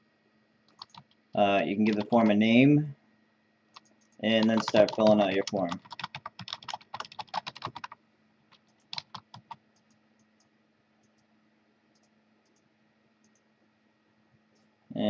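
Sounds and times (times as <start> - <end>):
faint steady hum: 0.0 - 15.0
typing on computer keyboard: 0.7 - 1.2, 1.8 - 2.4, 3.8 - 11.2.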